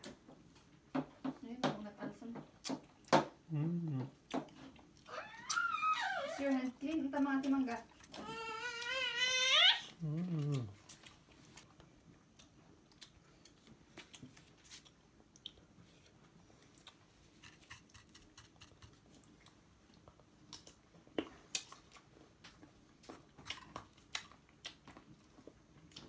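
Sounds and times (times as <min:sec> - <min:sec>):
chewing with soft crunches: 0:03.7 - 0:05.6, 0:06.2 - 0:09.0, 0:09.9 - 0:26.0.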